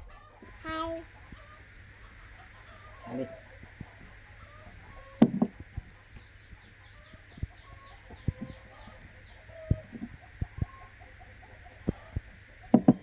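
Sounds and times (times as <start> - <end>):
chickens clucking: 0.0 - 13.0
high falling chirps: 0.0 - 13.0
sharp clicks and knocks: 5.2 - 6.3, 11.8 - 13.0.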